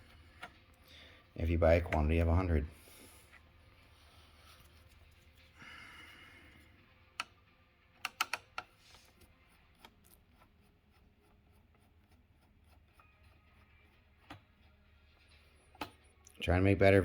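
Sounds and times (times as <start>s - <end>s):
sharp clicks and taps: 8.0s - 8.7s.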